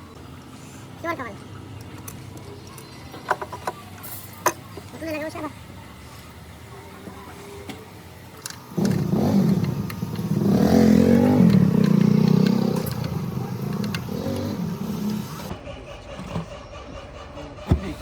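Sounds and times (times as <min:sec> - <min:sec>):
vehicle engine: 0:08.4 - 0:18.0.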